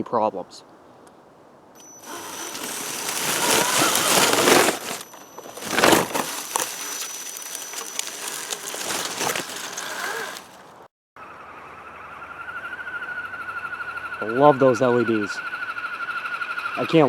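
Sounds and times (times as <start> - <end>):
high electric motor whine: 1.8 - 10.6
tyres crunching on rock and grit: 2.0 - 10.7.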